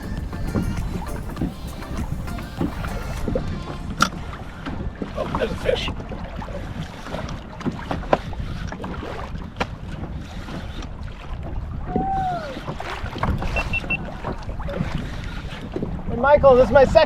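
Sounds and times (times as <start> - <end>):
wind buffeting microphone: 0.0 - 17.0
short high beeps: 13.5 - 14.1
brief arched tone: 13.6 - 14.0.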